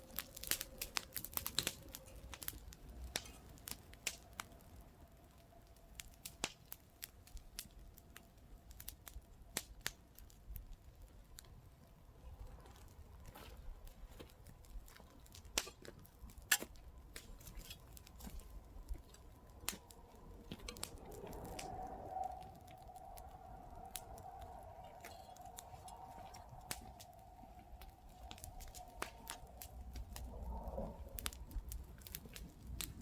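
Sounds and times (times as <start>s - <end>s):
campfire crackling: 0.0s - 33.0s
soft low rush: 18.1s - 33.0s.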